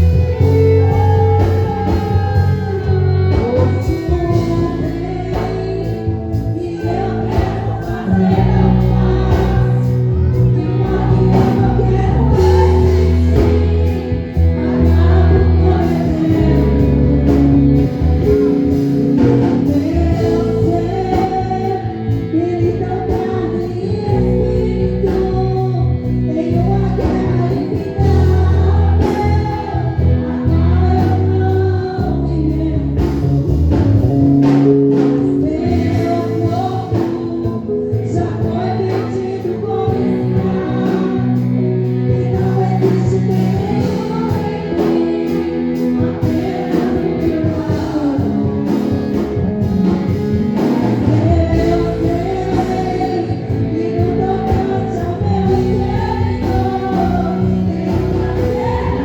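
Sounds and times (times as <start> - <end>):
instrumental accompaniment: 0.0 - 59.0
voices singing gospel song: 0.0 - 59.0.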